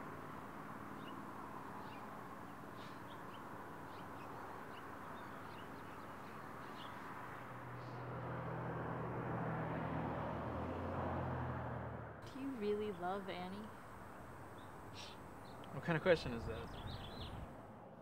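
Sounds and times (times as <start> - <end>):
bird chirps: 1.8 - 7.0, 14.5 - 15.8, 16.4 - 17.4
background hiss: 12.2 - 17.2.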